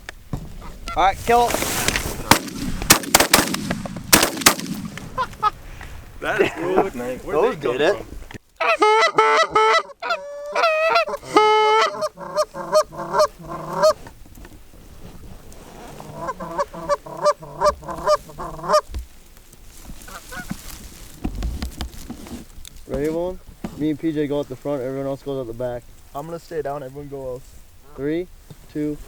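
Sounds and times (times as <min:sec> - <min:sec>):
goose honking and clucking: 0:08.6 - 0:14.1, 0:15.9 - 0:18.9.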